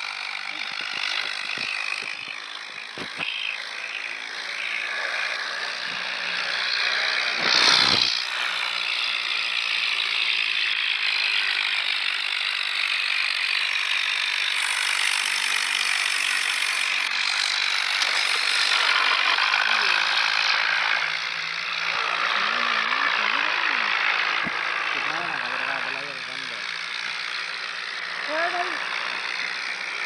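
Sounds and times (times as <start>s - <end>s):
tractor engine rattling: 0.1s - 9.8s.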